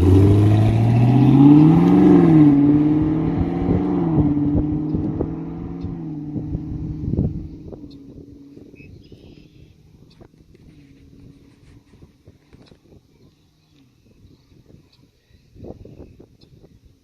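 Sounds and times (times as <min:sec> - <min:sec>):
car engine cruising away: 0:00.0 - 0:11.8.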